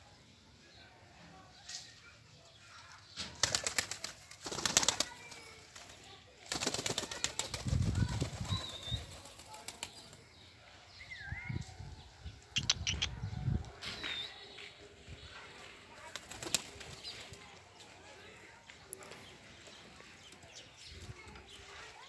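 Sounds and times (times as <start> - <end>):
bird wings flapping: 3.3 - 10.2, 16.0 - 17.4
short high bird calls: 12.5 - 13.2.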